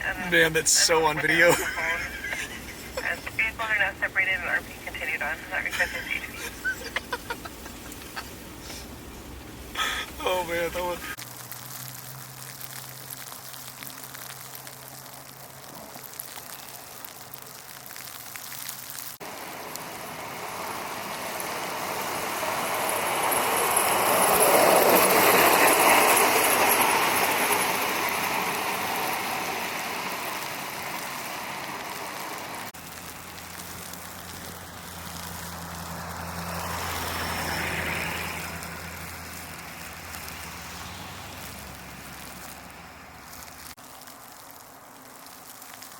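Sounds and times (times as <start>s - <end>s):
quieter vehicle passing: 19.2s - 43.8s
vehicle passing: 19.2s - 43.8s.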